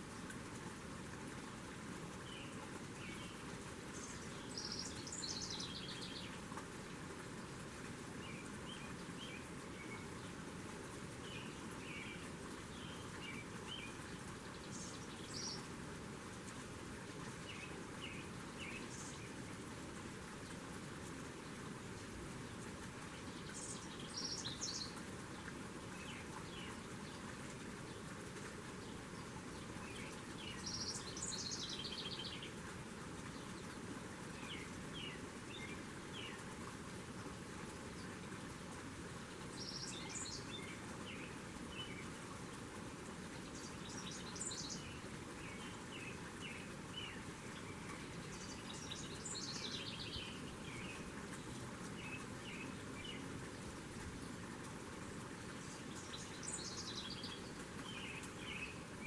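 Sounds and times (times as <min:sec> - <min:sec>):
steady background hiss: 0:00.0 - 0:59.0
small songbirds singing: 0:01.4 - 0:59.0
soft bird chirps: 0:43.4 - 0:53.3, 0:55.6 - 0:58.9.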